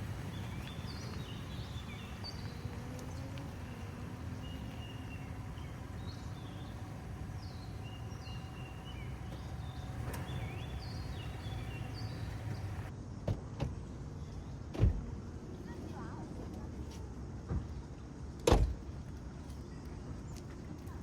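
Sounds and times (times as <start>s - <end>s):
birds whistling: 0.0s - 12.9s
low rumble: 0.0s - 12.9s.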